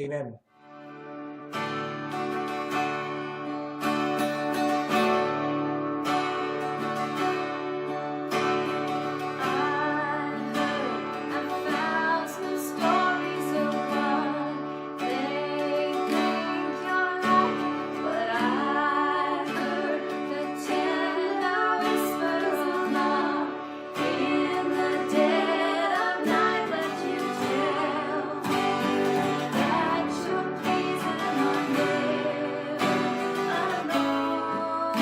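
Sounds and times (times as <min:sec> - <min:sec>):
strummed acoustic guitar: 0:00.5 - 0:35.0
woman singing: 0:09.2 - 0:35.0.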